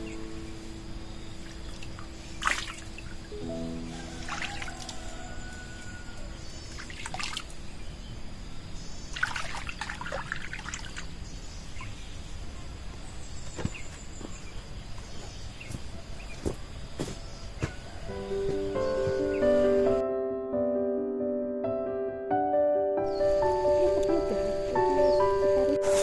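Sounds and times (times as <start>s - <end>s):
water trickling and dripping: 1.4s - 7.8s, 9.1s - 12.0s.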